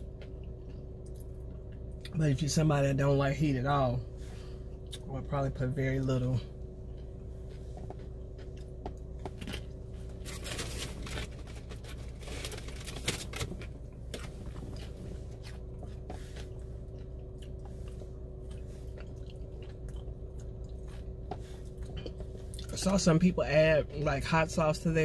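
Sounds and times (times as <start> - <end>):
steady low hum: 0.0 - 25.0
chewing and crunching chip: 6.6 - 23.0.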